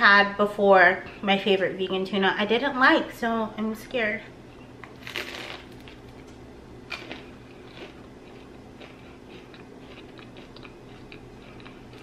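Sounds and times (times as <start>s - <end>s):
bite crunching toasted bread: 4.8s - 12.0s
quiet chewing: 4.8s - 12.0s.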